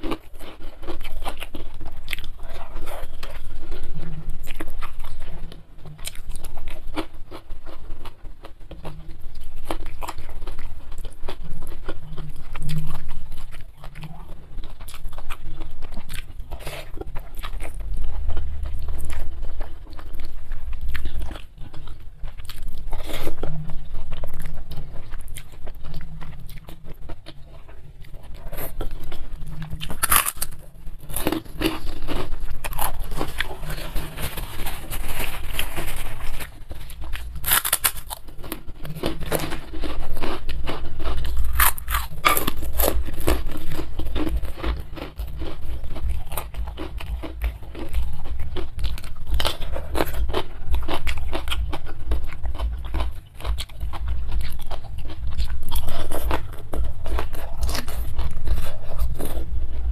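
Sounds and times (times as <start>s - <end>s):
noodles chewed: 0.0s - 59.9s
crackers crunched: 28.5s - 59.5s.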